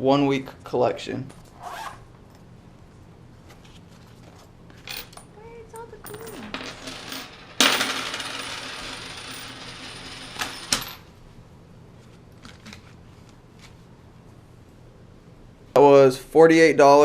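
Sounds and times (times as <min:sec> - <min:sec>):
coins rattling and clinking: 0:04.8 - 0:11.1.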